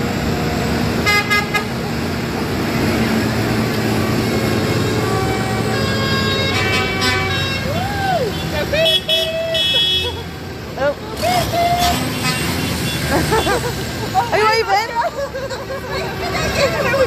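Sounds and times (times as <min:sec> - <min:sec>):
tractor engines running: 0:00.0 - 0:17.0
horn tooting: 0:01.0 - 0:01.8, 0:04.5 - 0:10.3, 0:11.2 - 0:13.8.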